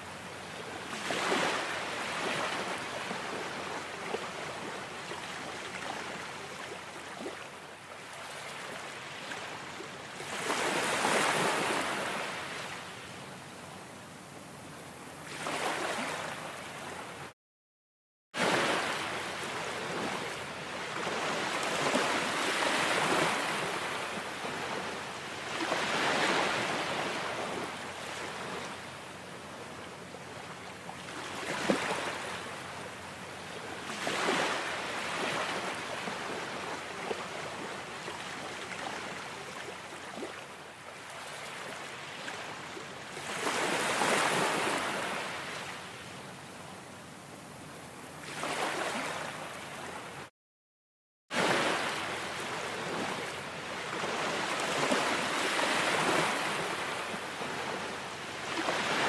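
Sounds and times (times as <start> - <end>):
ocean waves washing in: 18.4 - 28.8.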